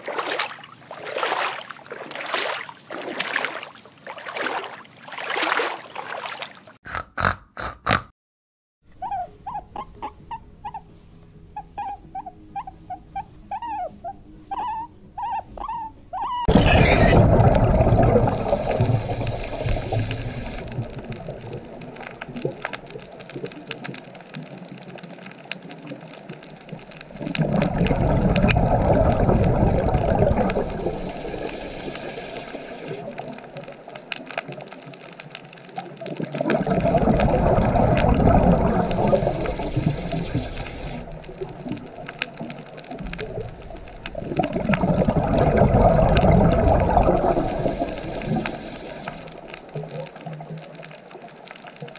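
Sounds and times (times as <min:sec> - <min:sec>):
high animal calls bending in pitch: 0:14.6 - 0:17.4
underwater rushing and bubbling: 0:16.5 - 0:51.9.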